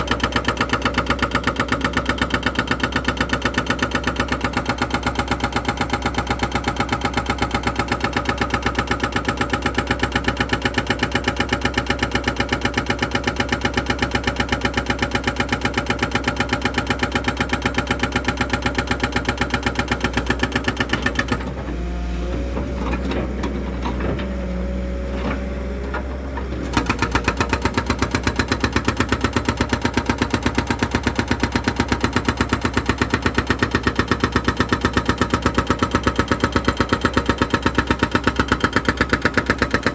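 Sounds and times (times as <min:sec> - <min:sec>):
engine running with rapid pulse: 0:25.1 - 0:39.9.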